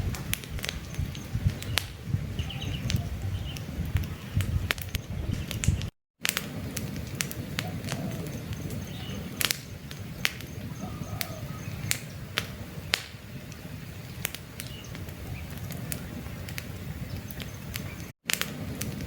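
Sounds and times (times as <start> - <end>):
campfire crackling and popping: 0.0 - 19.0
faint bird chirps: 7.6 - 9.4, 10.2 - 12.1.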